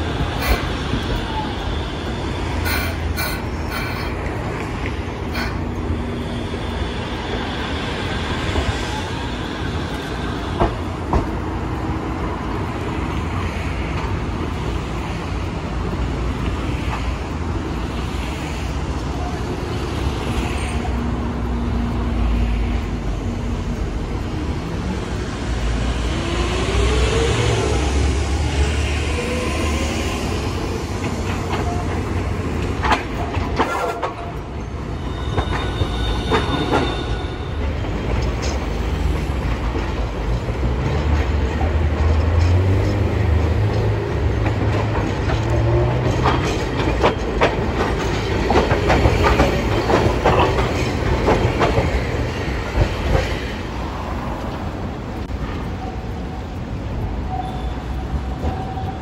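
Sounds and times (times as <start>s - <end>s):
city traffic: 0.0s - 59.0s
tram wheels and motors rumbling: 0.0s - 59.0s
wheels clacking over rail joints: 0.0s - 59.0s.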